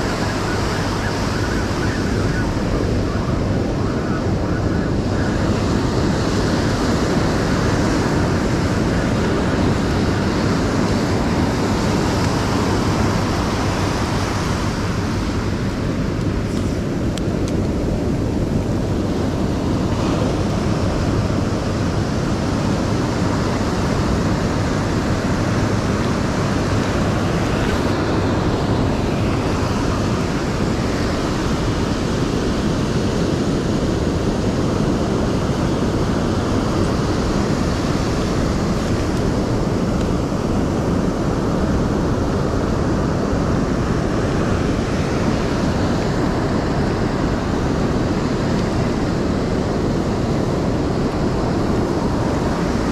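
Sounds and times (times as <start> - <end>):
ocean surf rushing: 0.0 - 52.9
wind buffeting microphone: 0.0 - 52.9.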